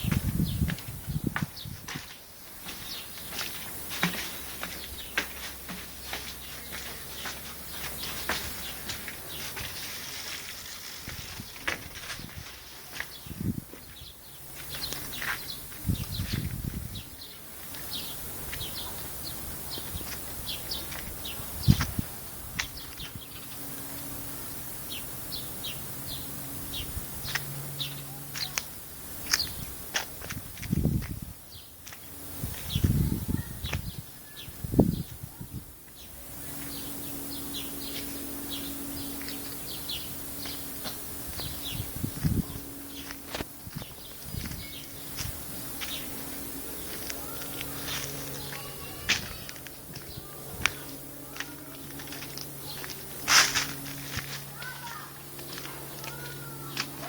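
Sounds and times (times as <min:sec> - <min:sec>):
small birds chirping: 0:00.0 - 0:29.8, 0:30.8 - 0:57.0
steady low hum: 0:00.0 - 0:57.0
low rumbles: 0:32.3 - 0:57.0.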